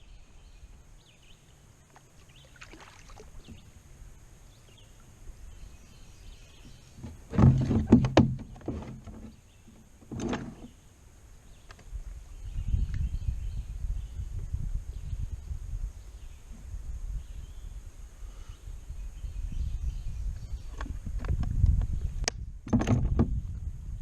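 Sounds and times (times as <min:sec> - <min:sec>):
birds chirping faintly: 0:00.0 - 0:21.0
splashes and knocks: 0:01.9 - 0:03.7, 0:07.0 - 0:09.4
kayak paddle strokes: 0:06.6 - 0:10.8.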